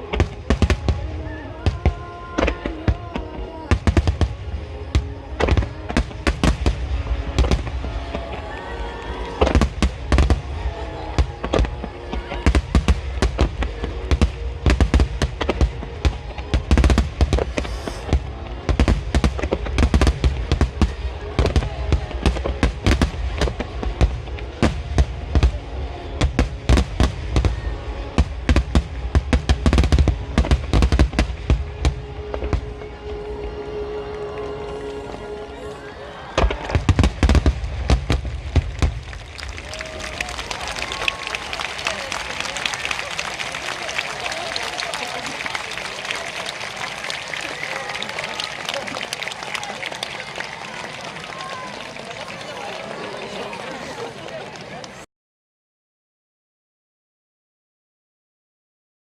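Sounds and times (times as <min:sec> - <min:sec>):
fireworks bursting with sharp bangs: 0:00.0 - 0:35.4, 0:36.2 - 0:47.2
music: 0:00.0 - 0:44.9.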